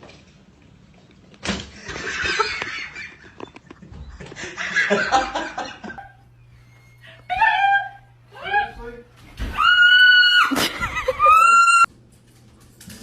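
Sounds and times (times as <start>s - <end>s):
person laughing: 10.5s - 11.7s.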